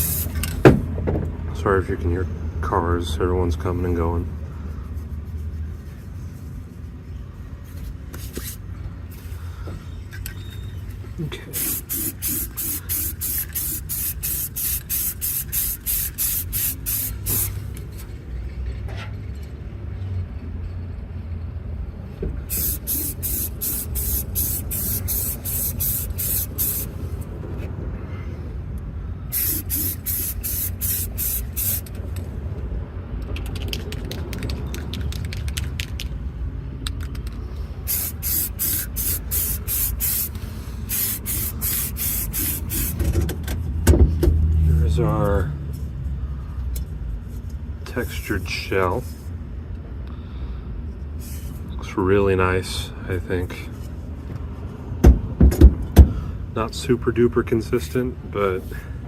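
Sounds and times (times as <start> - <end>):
aerosol spray can hissing: 0.0 - 0.4, 11.5 - 17.6, 22.5 - 27.0, 29.3 - 31.9, 37.9 - 43.0
low rumble of traffic: 0.0 - 59.0.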